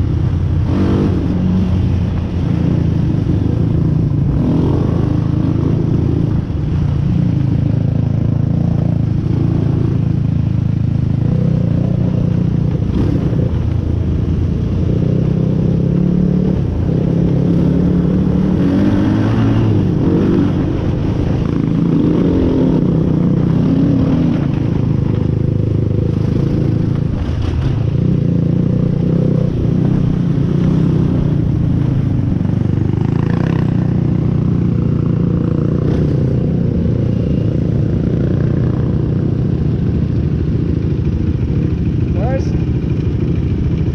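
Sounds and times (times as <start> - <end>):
off-road vehicle engine revving: 0.0 - 7.4, 14.8 - 39.2.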